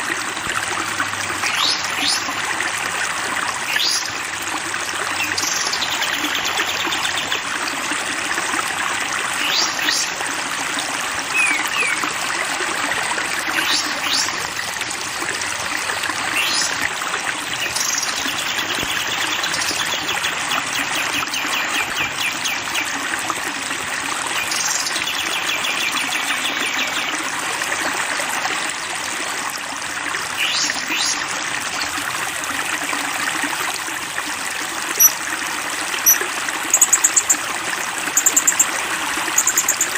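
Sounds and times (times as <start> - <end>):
stream water flowing: 0.0 - 39.9
songbirds whistling: 11.4 - 12.0, 36.0 - 37.4, 38.2 - 38.7, 39.3 - 39.9
bird trills: 36.0 - 37.4, 38.2 - 38.7, 39.3 - 39.9.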